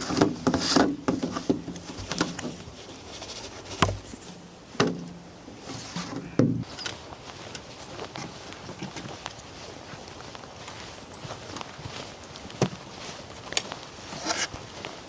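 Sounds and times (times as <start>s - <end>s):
knocks and clicks of handling: 3.7s - 6.7s.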